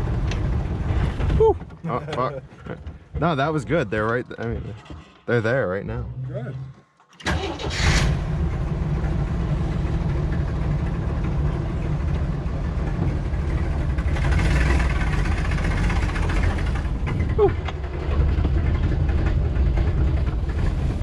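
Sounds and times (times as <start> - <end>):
car engine running: 7.3 - 21.0.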